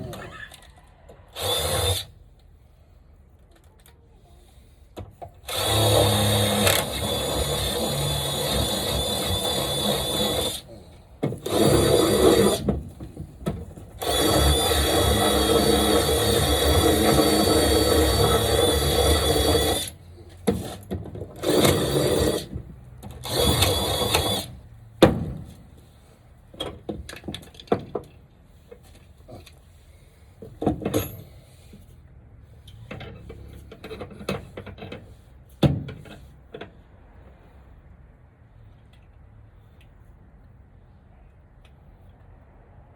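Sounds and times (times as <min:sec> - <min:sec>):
power drill running: 0:01.3 - 0:02.1, 0:05.4 - 0:10.7, 0:11.4 - 0:12.6, 0:14.0 - 0:20.0, 0:21.4 - 0:22.5, 0:23.2 - 0:24.5.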